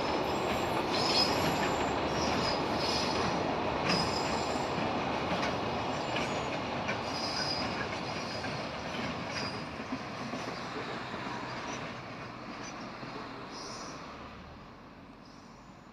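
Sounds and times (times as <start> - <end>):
train wheels rumbling on bridge: 0.0 - 14.5
high wheel squeals: 0.3 - 4.8, 5.9 - 12.0.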